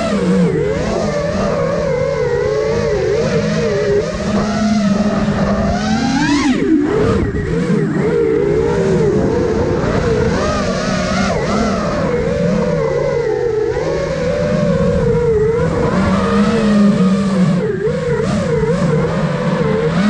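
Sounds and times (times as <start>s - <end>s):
drone propellers whining: 0.0s - 20.0s.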